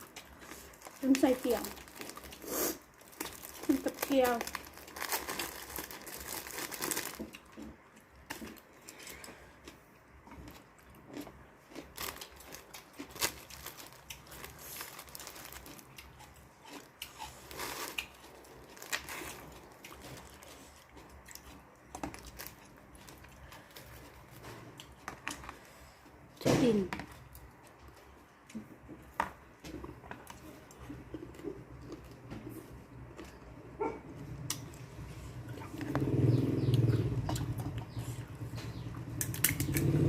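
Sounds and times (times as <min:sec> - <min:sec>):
plastic packaging crinkling: 0:00.0 - 0:07.6, 0:11.8 - 0:16.0, 0:17.5 - 0:20.4, 0:22.0 - 0:24.0
person crunching and chewing: 0:00.0 - 0:26.2, 0:29.8 - 0:33.4.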